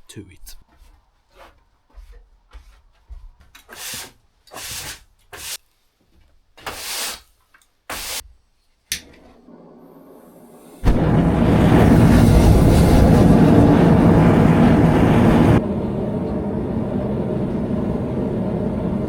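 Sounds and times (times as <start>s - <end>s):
short rubbing strokes: 3.7s - 5.6s, 7.9s - 8.3s
steady low hum: 9.4s - 19.0s.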